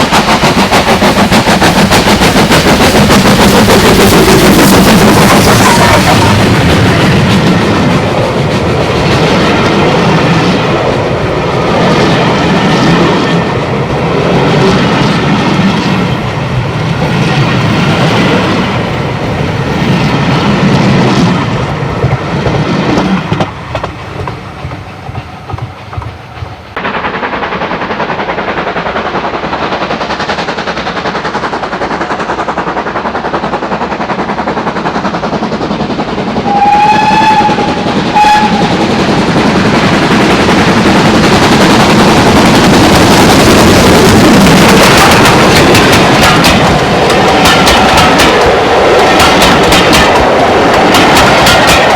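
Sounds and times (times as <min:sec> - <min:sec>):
steam train passing: 0:00.0 - 0:51.9
wheels clicking over rail joints: 0:22.0 - 0:26.8, 0:37.4 - 0:51.9.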